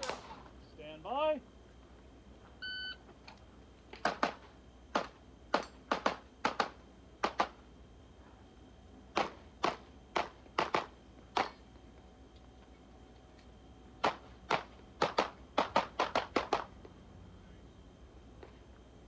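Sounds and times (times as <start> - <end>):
pistol shots: 0.0 - 0.4.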